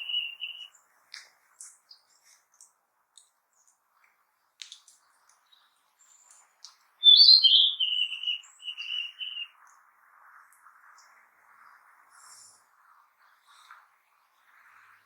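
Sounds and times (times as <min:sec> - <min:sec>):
bird singing whistled phrase: 0:00.0 - 0:00.7, 0:07.0 - 0:09.5
faint hiss: 0:00.0 - 0:15.0.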